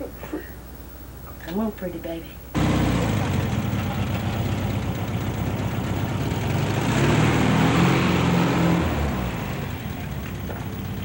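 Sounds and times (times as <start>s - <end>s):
car engine driving past: 2.6s - 10.8s.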